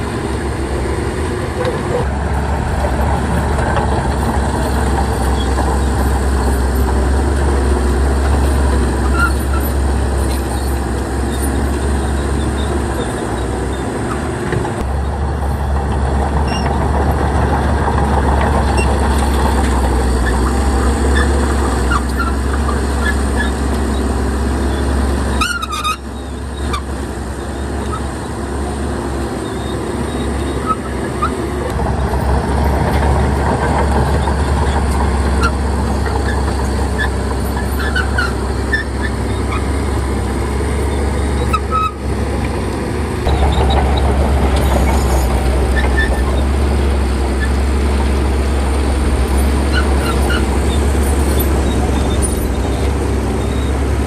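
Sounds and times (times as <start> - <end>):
heavy diesel engine hum: 0.0 - 54.0.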